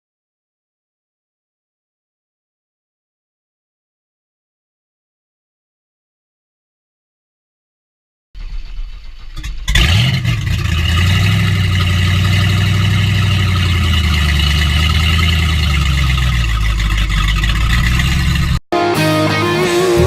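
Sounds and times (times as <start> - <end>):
engine starting and revving: 8.4 - 18.6.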